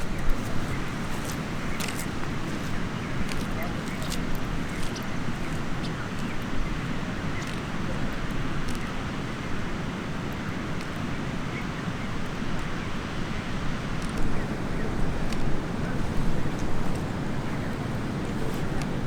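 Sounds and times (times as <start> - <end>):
faint light clicks: 7.4 - 8.9, 14.0 - 14.5, 15.3 - 15.5
wind buffeting microphone: 13.6 - 19.0.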